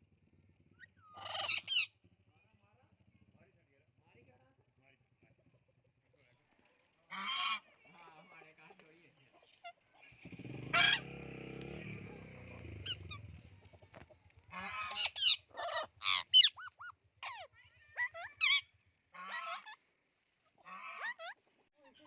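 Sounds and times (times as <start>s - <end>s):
birds calling: 0.6s - 2.1s, 6.2s - 22.0s.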